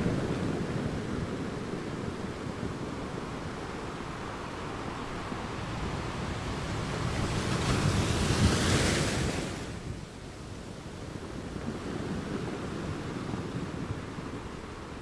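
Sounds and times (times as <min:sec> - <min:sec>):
ocean wave rushing: 0:00.0 - 0:09.8
steady wash of water: 0:00.0 - 0:10.3.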